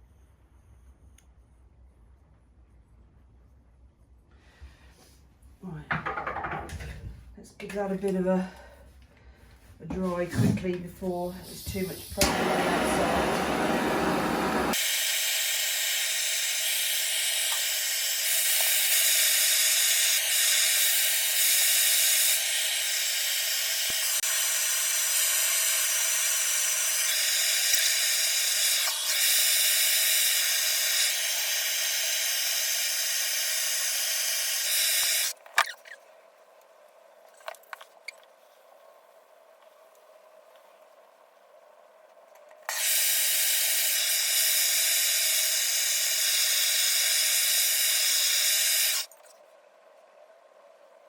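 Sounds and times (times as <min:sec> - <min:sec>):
hot-air dryer blowing: 0:11.4 - 0:35.4, 0:42.7 - 0:49.1.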